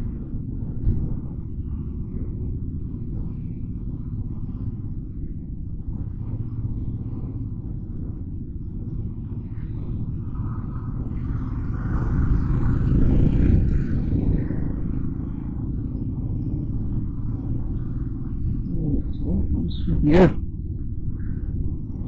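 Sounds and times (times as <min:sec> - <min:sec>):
wind on microphone: 0:00.0 - 0:22.0
motorcycle engine rumble: 0:06.2 - 0:22.0.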